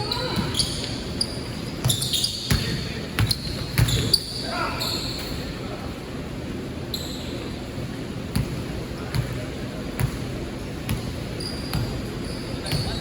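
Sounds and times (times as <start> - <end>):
basketball bouncing on gym floor: 1.8 - 4.2, 8.3 - 9.4, 10.0 - 13.0.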